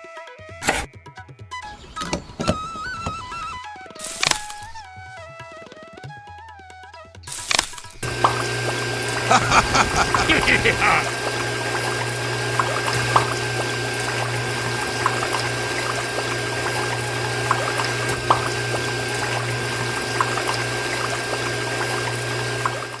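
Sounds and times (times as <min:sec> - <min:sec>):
electric water pump humming: 0:08.0 - 0:23.0
water pouring and trickling: 0:11.0 - 0:23.0
water drips and splashes: 0:11.1 - 0:23.0.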